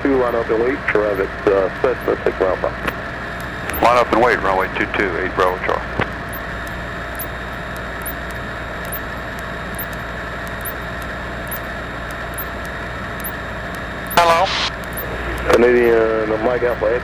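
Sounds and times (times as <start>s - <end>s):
airplane engine and propeller drone: 0.0s - 17.0s
faint high ticks: 6.0s - 16.0s.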